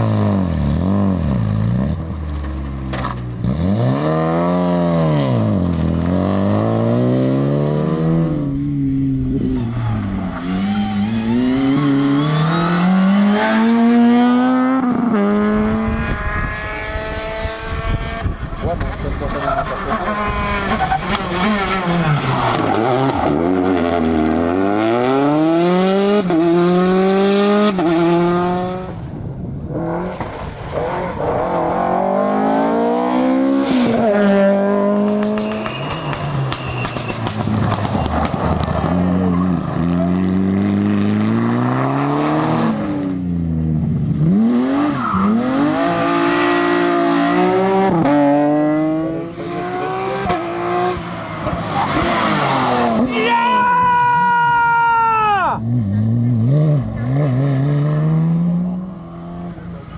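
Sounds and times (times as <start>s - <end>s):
rally car engines revving: 0.0s - 54.5s, 55.5s - 59.9s.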